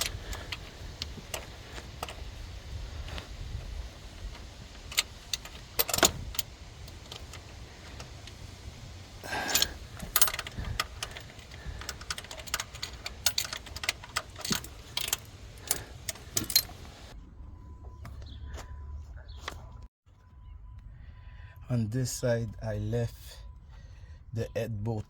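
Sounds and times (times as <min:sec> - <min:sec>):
socket and ratchet clinking on metal: 0:00.0 - 0:17.1.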